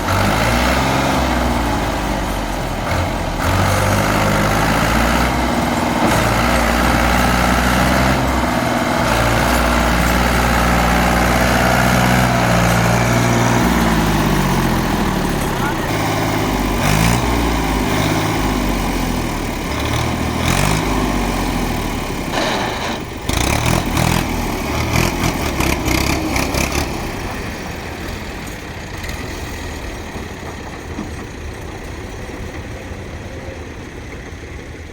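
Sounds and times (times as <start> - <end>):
tractor engine revving: 0.0 - 34.9
rough clattering: 2.5 - 18.7.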